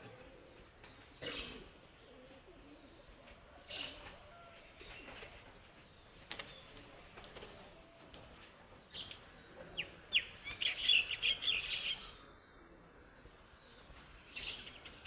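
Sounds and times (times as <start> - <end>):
bird chirping: 9.8 - 12.2.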